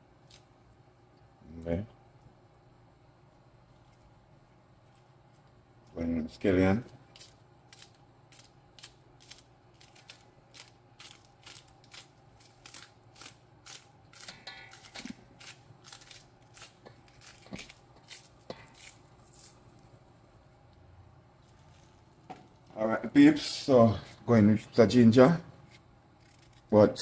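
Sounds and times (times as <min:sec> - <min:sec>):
knife slicing scallions: 0:07.1 - 0:19.6.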